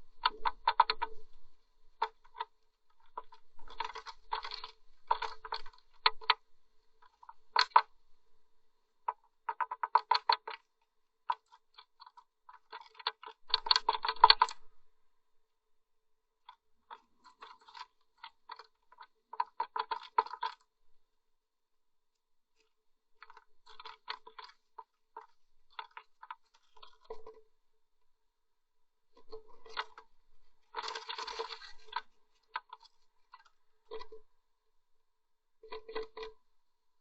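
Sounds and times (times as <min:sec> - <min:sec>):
bird scratching and tapping in nest: 0:00.1 - 0:01.3, 0:02.0 - 0:06.4, 0:07.0 - 0:07.9, 0:09.1 - 0:10.7, 0:11.3 - 0:14.6, 0:16.5 - 0:20.7, 0:23.2 - 0:27.4, 0:29.2 - 0:34.2, 0:35.6 - 0:36.4.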